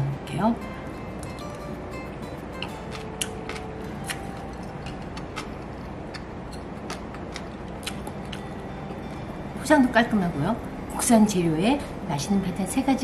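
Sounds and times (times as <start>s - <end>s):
steady low hiss: 0.0s - 13.0s
person chewing crunchy pickle: 2.6s - 9.2s.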